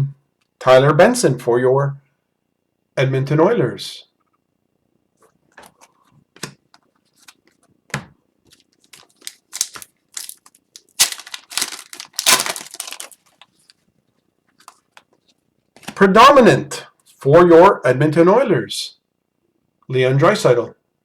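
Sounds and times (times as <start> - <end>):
card wrapping crinkling and tearing: 8.5 - 13.8.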